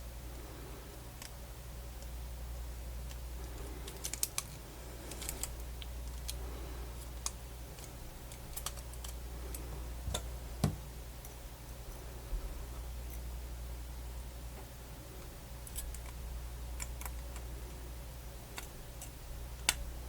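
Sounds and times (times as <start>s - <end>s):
steady low hum: 0.0s - 20.0s
small plastic parts clicking: 3.9s - 6.4s.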